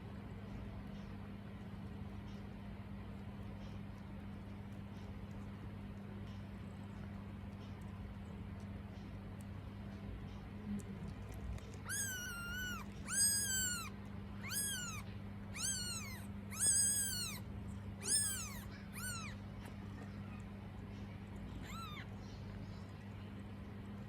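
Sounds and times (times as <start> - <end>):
kitten mewing: 11.6 - 19.4, 21.5 - 22.2.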